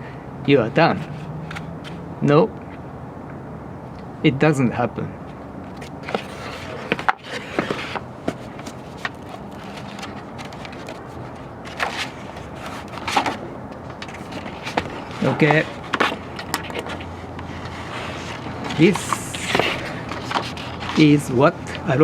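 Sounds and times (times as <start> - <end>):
handling clicks and knocks: 5.7 - 21.1
short rustling: 5.7 - 21.9.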